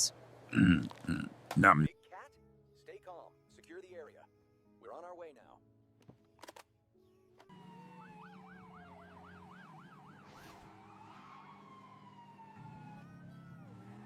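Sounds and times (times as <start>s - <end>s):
emergency vehicle siren: 7.5s - 14.0s.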